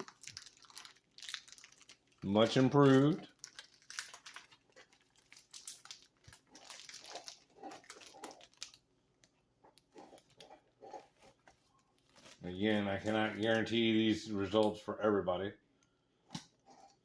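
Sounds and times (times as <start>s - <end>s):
packaging crinkling and clicking: 0.0s - 10.5s.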